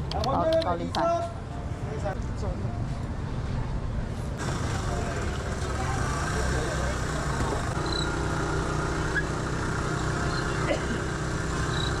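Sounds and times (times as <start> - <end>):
low engine hum: 4.0 - 12.0.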